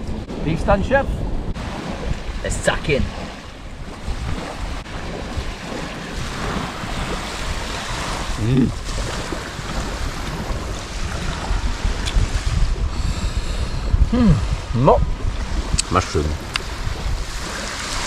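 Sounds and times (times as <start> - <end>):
wind buffeting microphone: 0.0 - 18.0
surf breaking on beach: 1.5 - 12.9.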